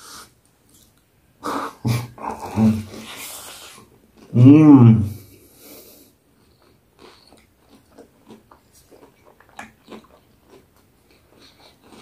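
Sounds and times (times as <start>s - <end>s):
crunchy chewing: 6.4s - 12.0s.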